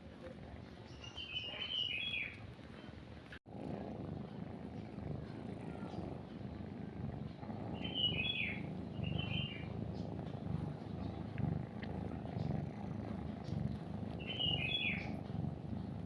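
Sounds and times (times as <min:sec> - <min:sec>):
kitten purring: 0:00.2 - 0:16.0
small bird chirping: 0:00.8 - 0:02.4, 0:05.0 - 0:16.0.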